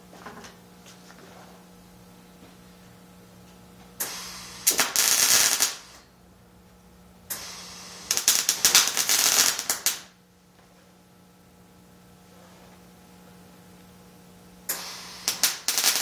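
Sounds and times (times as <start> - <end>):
arc welding crackling: 4.0 - 6.1, 7.3 - 10.2, 14.6 - 16.0
welding arc hiss: 4.0 - 6.1, 7.3 - 10.2, 14.6 - 16.0.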